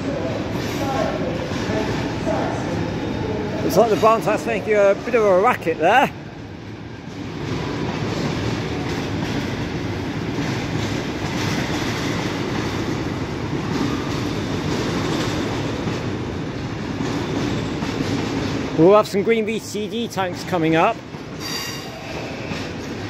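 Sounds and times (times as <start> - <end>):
freight train wheels clattering: 0.0 - 23.0.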